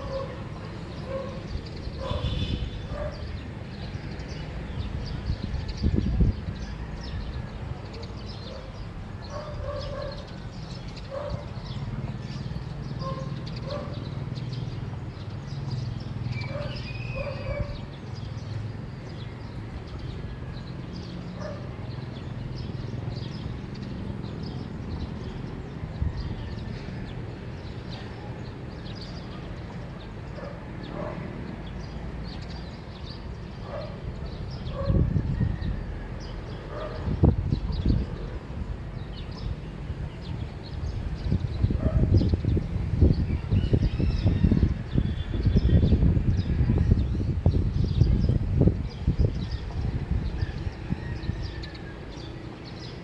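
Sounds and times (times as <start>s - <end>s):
distant dog barking: 0.0s - 3.4s, 8.0s - 10.3s, 11.0s - 11.7s, 13.0s - 14.2s, 16.4s - 17.9s, 21.3s - 21.8s, 30.4s - 31.3s, 33.6s - 35.1s, 36.7s - 37.2s, 41.7s - 42.2s
birds chirping: 0.0s - 53.0s.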